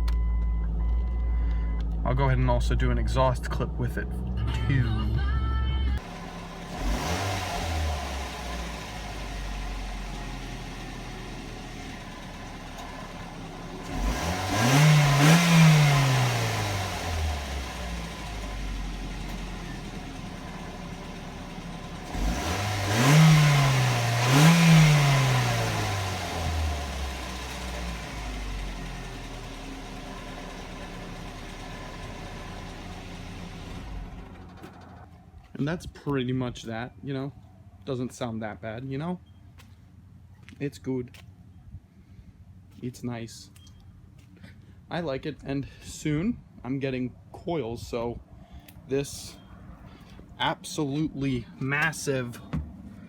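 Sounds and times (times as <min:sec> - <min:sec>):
car engine idling and revving: 0:00.0 - 0:35.8.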